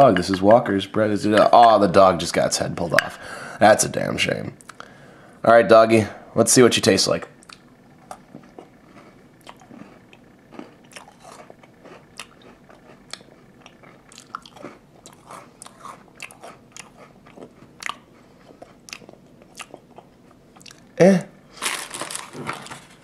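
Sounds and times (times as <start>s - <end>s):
biscuit crunching: 7.4s - 20.9s, 21.5s - 23.0s.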